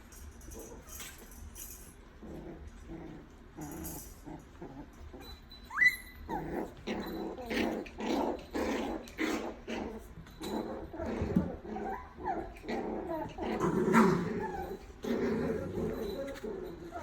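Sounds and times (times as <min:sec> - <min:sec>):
puppies growling: 0:00.4 - 0:17.0
puppy high cry: 0:05.2 - 0:07.8, 0:10.8 - 0:17.0.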